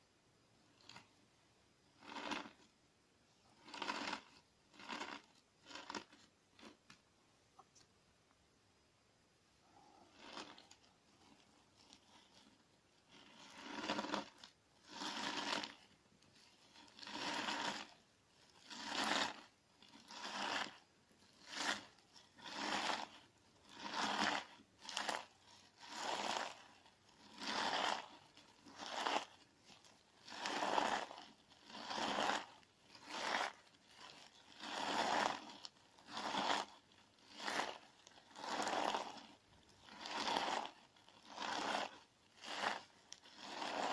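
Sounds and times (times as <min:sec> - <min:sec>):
gritty slime squeezing crunches: 0:03.6 - 0:06.8, 0:13.1 - 0:16.0, 0:16.6 - 0:43.9.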